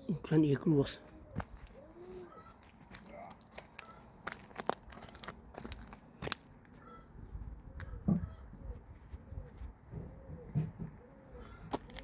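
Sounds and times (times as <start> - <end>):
dove cooing: 1.0 - 3.3, 6.8 - 12.0.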